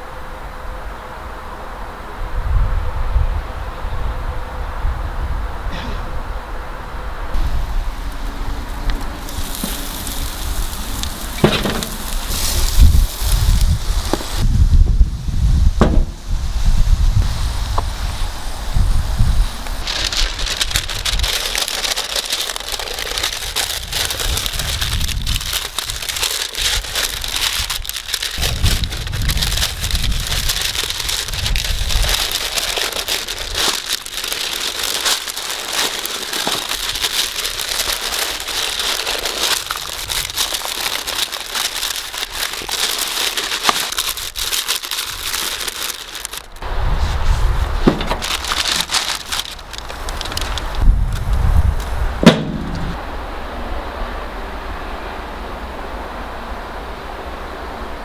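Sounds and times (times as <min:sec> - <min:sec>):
low rumbles: 0:07.2 - 0:35.6, 0:46.3 - 0:53.5
wood fire crackling: 0:07.4 - 0:53.1.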